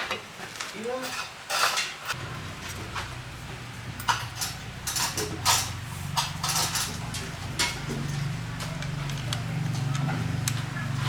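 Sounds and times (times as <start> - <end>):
metal tools clinking and knocking: 4.0 - 10.0.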